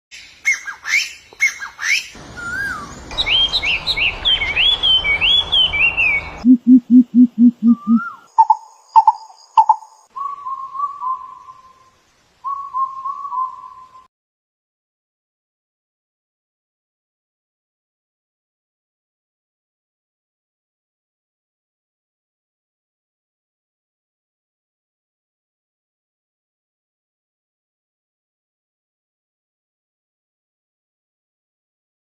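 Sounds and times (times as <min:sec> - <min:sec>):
birds chirping: 0:00.1 - 0:13.9
whistled bird notes and trills: 0:00.1 - 0:14.1
low hoots: 0:06.2 - 0:08.3
background hiss: 0:08.7 - 0:14.1.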